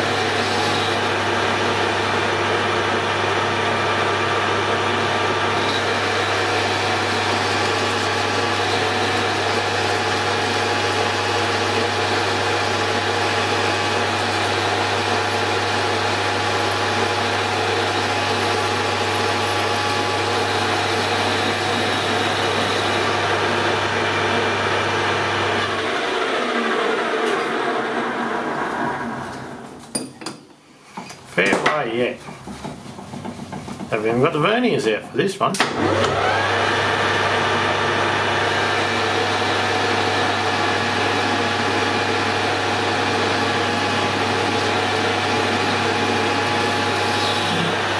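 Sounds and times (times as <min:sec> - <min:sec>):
metal lathe running: 0:00.0 - 0:29.6, 0:35.8 - 0:47.9
lathe spindle spinning down: 0:00.0 - 0:29.8, 0:35.6 - 0:47.9.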